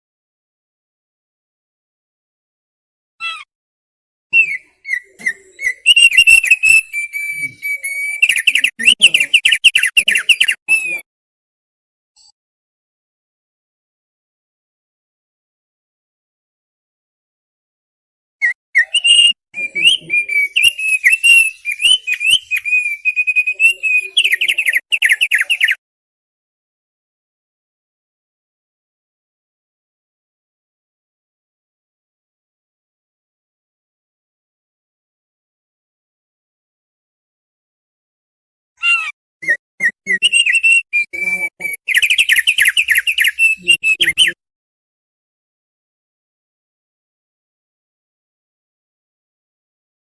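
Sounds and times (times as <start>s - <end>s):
bird singing whistled notes: 4.4s - 11.0s, 18.4s - 25.8s, 39.4s - 44.4s.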